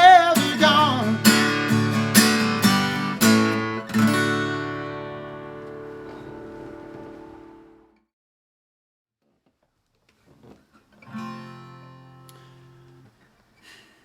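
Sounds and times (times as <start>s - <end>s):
acoustic guitar strummed chords: 0.0s - 8.0s, 11.0s - 13.0s.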